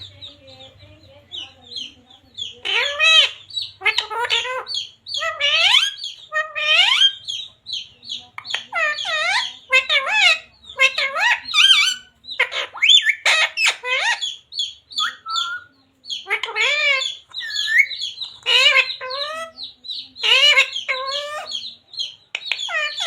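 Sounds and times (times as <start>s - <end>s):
parrot chirps: 1.8s - 23.0s
parrot squawking and whistling: 2.6s - 7.3s, 8.7s - 19.5s.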